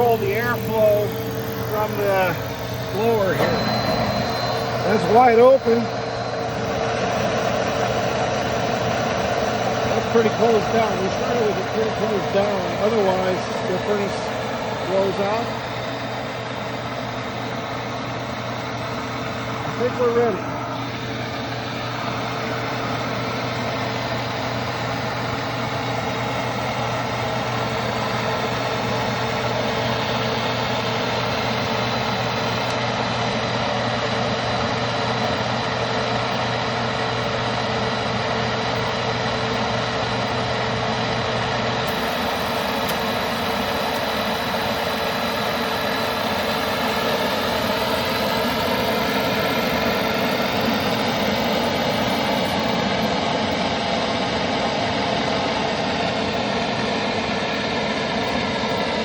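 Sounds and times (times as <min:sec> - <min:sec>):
low hum: 0:00.0 - 0:32.8
blower motor whining: 0:00.0 - 0:59.0
burner rushing: 0:41.9 - 0:53.8.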